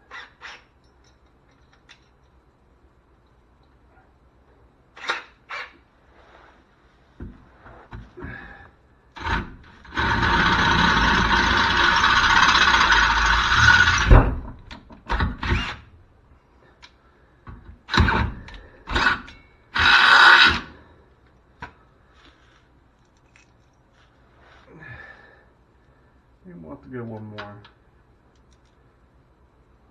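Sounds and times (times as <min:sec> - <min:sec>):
power drill boring into steel: 0:09.2 - 0:14.3, 0:15.4 - 0:15.8, 0:17.9 - 0:20.7.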